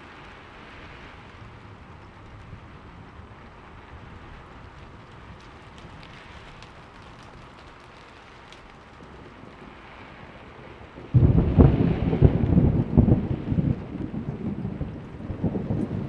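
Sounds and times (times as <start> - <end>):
steady rain: 0.0 - 16.0
thunder clap rumbling: 9.0 - 16.0.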